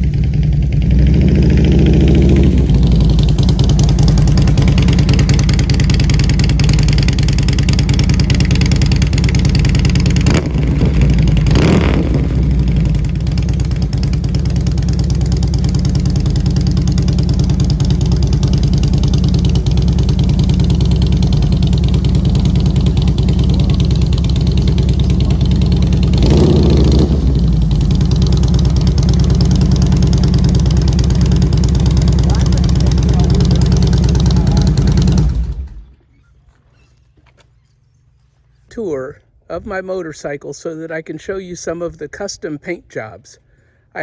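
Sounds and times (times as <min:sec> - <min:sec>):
motorcycle engine idling: 0:00.0 - 0:38.5.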